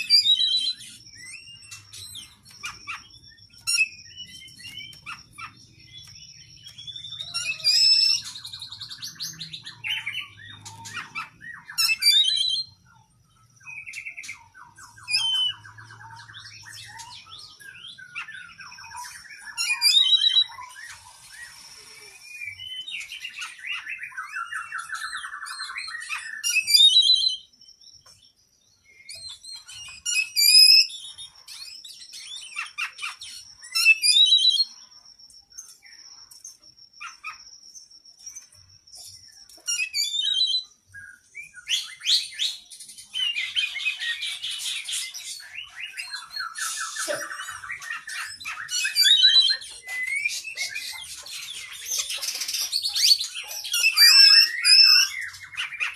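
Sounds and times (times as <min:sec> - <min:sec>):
songbird singing: 0:00.0 - 0:55.9
thin steady high tone: 0:20.2 - 0:23.4.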